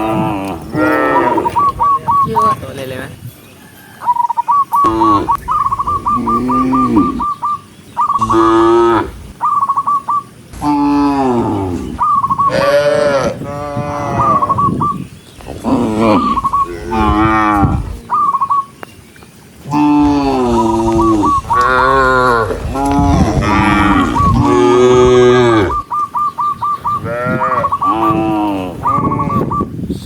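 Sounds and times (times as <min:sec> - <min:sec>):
cows mooing: 0:00.0 - 0:01.7, 0:04.8 - 0:07.4, 0:08.2 - 0:09.3, 0:10.5 - 0:14.6, 0:15.4 - 0:18.2, 0:19.6 - 0:25.9, 0:27.0 - 0:29.5.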